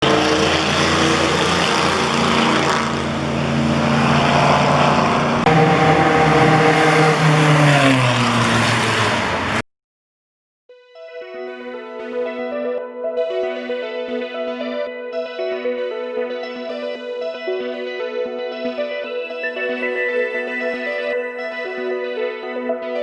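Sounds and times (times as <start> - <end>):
race car engine at high revs: 0.0 - 9.6.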